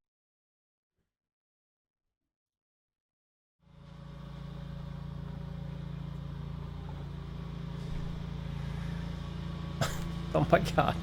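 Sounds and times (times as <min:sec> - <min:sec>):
small engine idling: 0:03.6 - 0:11.0.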